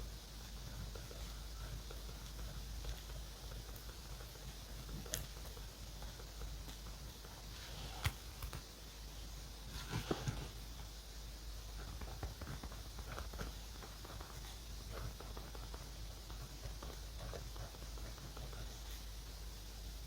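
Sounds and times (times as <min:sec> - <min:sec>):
pen scratching on paper: 0:11.8 - 0:19.1.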